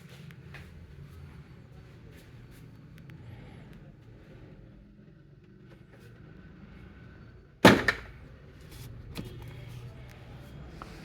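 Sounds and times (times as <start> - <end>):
refrigerator door slamming shut: 7.6 - 8.1.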